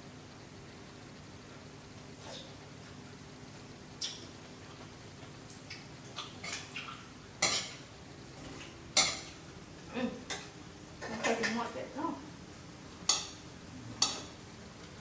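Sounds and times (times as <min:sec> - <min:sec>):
dishes and utensils clattering: 0:07.4 - 0:07.8, 0:08.4 - 0:09.4, 0:13.1 - 0:13.4, 0:14.0 - 0:14.3.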